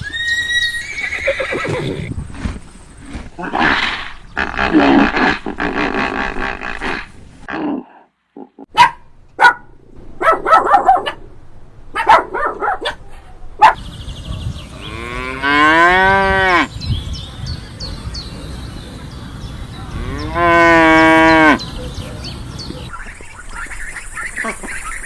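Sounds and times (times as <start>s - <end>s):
cow mooing: 19.9s - 21.6s.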